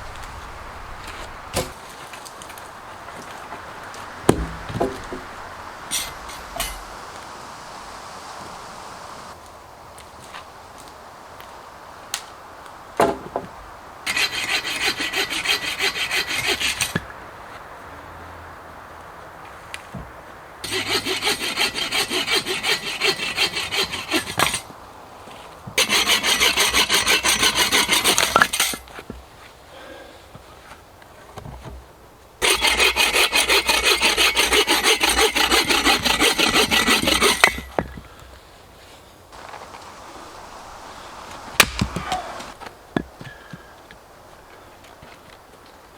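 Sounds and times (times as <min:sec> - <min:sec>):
hand saw cutting wood: 0:01.1 - 0:01.9, 0:03.2 - 0:09.4, 0:14.1 - 0:17.1, 0:20.6 - 0:24.7, 0:25.8 - 0:28.9, 0:32.4 - 0:38.0, 0:39.4 - 0:42.6
sharp knock: 0:04.3 - 0:05.3, 0:41.6 - 0:42.3.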